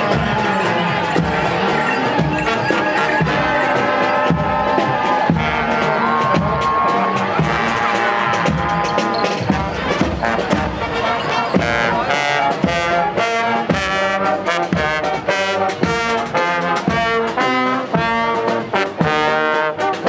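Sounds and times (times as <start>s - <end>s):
drum strokes: 0.0s - 15.2s
brass band playing: 0.0s - 20.0s.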